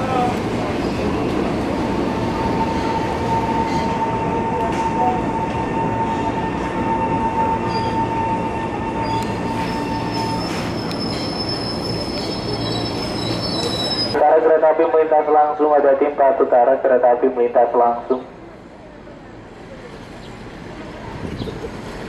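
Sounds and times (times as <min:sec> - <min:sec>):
electric train rumbling: 0:00.0 - 0:15.1, 0:17.9 - 0:22.0
wheel squeal: 0:06.1 - 0:14.2.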